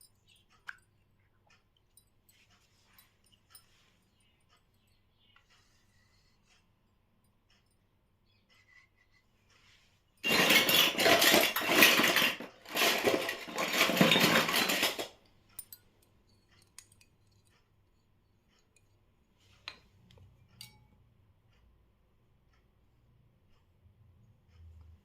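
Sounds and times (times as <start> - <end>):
toy pieces clattering: 10.2 - 15.2.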